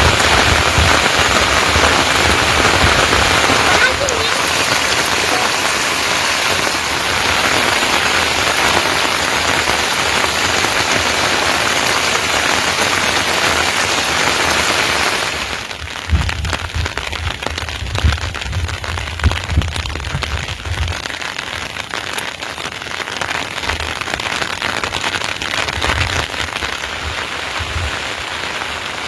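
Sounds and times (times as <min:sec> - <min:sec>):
low thuds and crackling: 0:00.0 - 0:08.4, 0:15.6 - 0:21.7, 0:23.5 - 0:28.4
heavy rain falling: 0:00.0 - 0:29.0.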